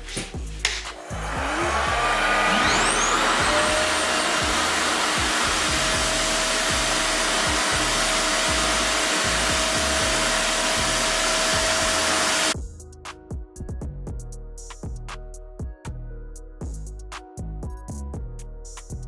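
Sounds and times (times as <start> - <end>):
hair dryer running: 0.7 - 12.6.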